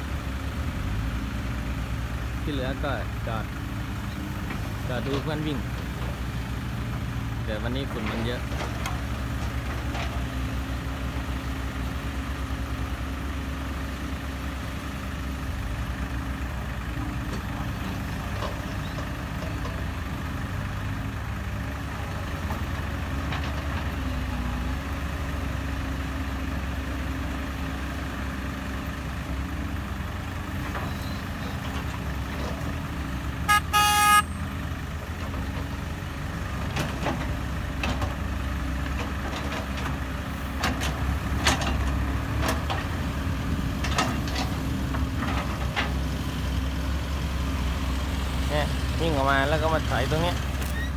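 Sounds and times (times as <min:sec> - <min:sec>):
diesel engines rumbling: 0:00.0 - 0:50.9
short horn blast: 0:33.5 - 0:34.4.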